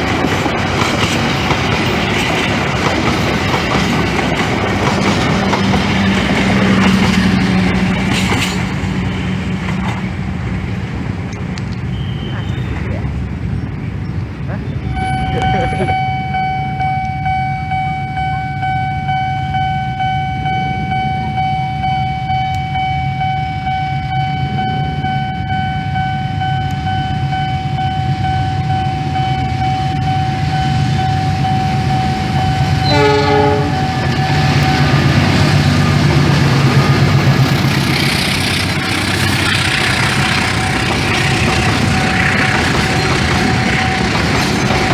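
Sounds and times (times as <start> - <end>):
diesel locomotives rumbling: 0.0 - 44.9
train wheels on rails: 0.0 - 44.9
train horn: 11.9 - 12.7, 31.9 - 35.0
thin high tone: 14.9 - 35.0.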